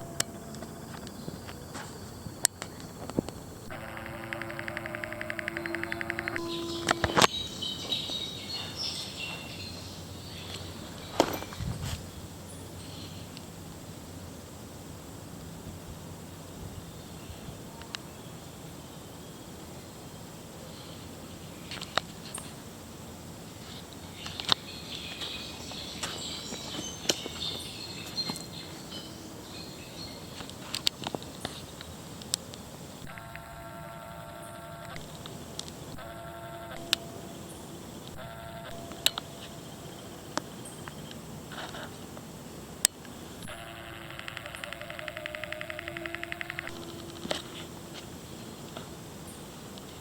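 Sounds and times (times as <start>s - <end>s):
small birds chirping: 0.0s - 14.3s, 15.4s - 33.4s
outdoor background noise: 0.0s - 50.0s
steady background hiss: 0.0s - 50.0s
sharp clicks: 2.4s - 7.4s, 33.0s - 33.6s, 38.0s - 39.4s, 42.8s - 47.5s.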